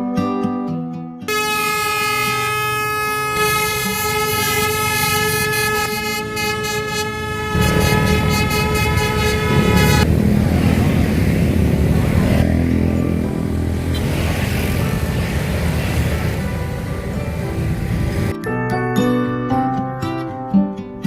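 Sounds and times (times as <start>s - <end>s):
horn blast: 1.3s - 10.1s
low rumbling noise: 6.2s - 18.3s.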